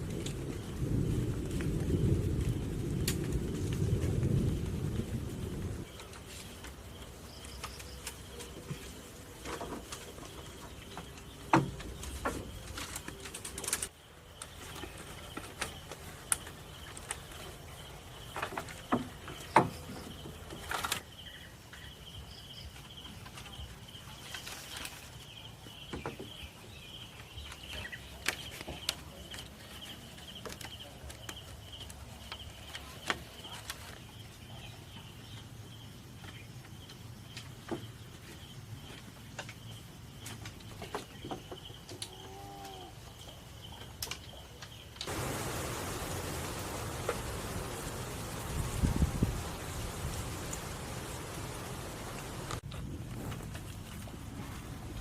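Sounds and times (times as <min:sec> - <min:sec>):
knocks and clacks of wood: 0:09.5 - 0:13.0, 0:18.3 - 0:20.8
high insect drone: 0:45.1 - 0:52.6.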